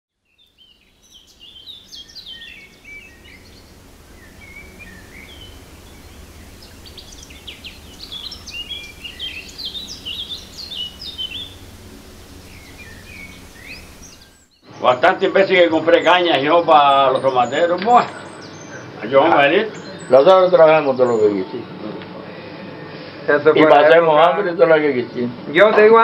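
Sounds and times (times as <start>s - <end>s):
small birds chirping: 0.2s - 23.1s
low background rumble: 0.8s - 14.5s.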